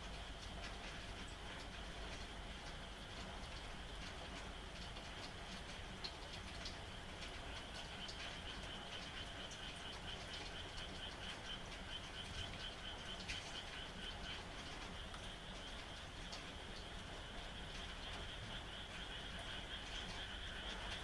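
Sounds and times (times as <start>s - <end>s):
rain hiss: 0.0s - 21.0s
raindrop ticks: 0.0s - 21.0s
frogs trilling: 6.1s - 21.0s.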